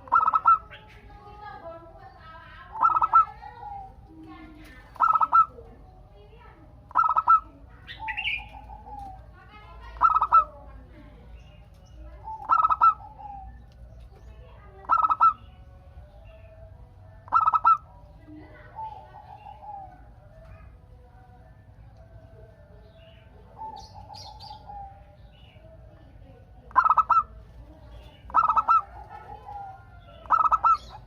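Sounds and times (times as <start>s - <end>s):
dove cooing loud double notes: 4.9s - 5.7s, 17.2s - 18.0s, 28.1s - 31.0s.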